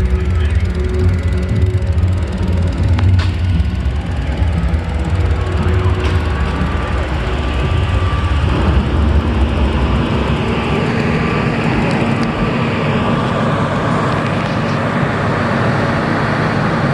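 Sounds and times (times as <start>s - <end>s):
vehicle hum: 0.0s - 16.9s.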